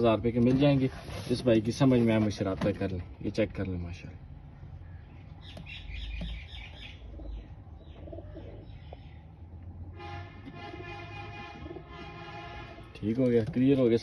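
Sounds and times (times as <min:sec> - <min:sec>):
young pigeons peeping: 0:04.5 - 0:09.9.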